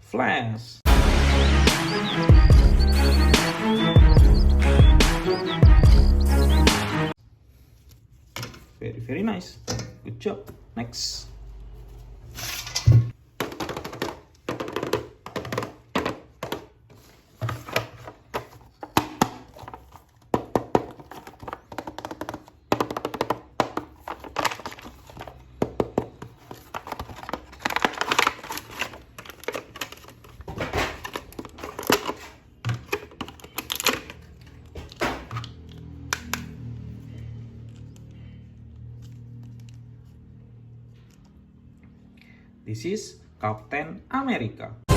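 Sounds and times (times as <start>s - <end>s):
plastic packaging clicks and rustles: 13.3s - 36.1s.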